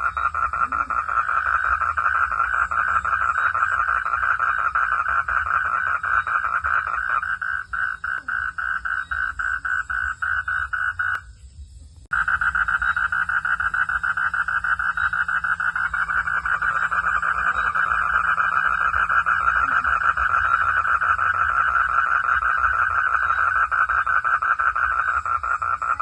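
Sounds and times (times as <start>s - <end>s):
frogs calling in chorus: 0.0s - 11.4s, 12.1s - 26.0s.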